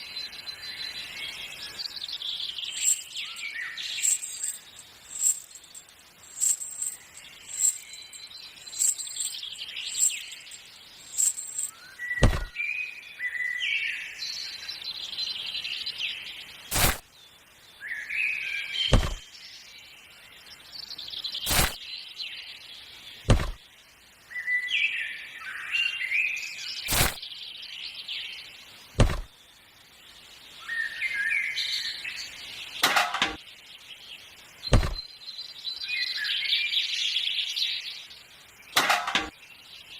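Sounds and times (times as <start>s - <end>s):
birds chirping: 0.0s - 39.9s
sharp clicks or knocks: 18.9s - 19.2s, 23.3s - 23.6s, 29.0s - 29.3s, 34.7s - 35.0s.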